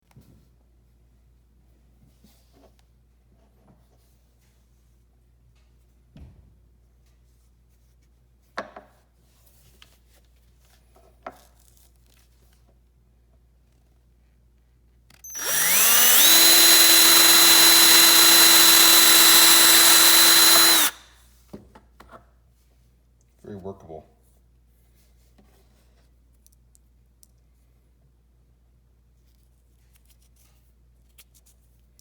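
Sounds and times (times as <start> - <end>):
power drill drilling into plastic: 15.3 - 21.0.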